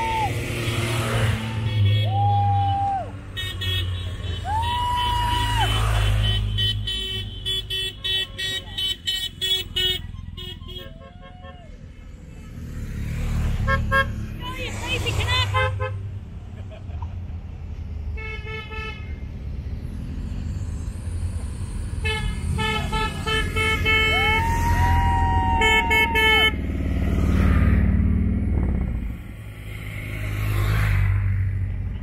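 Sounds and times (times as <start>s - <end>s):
motorcycles passing close: 0.0s - 7.1s, 11.9s - 18.1s, 19.1s - 32.0s
motorcycle engines rumbling: 0.0s - 18.2s, 19.0s - 32.0s
motorcycle horns beeping: 5.9s - 11.0s.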